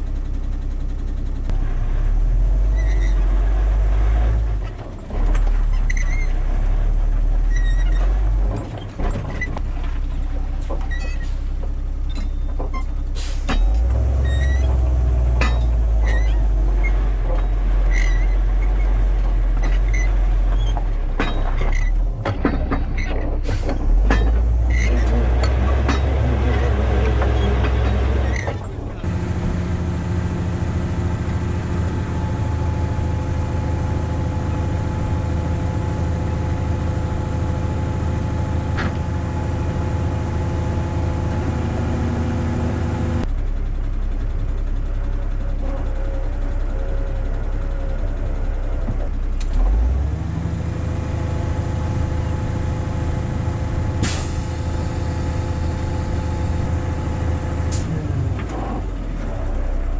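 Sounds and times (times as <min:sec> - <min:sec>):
diesel truck engine running: 0:00.0 - 0:59.9.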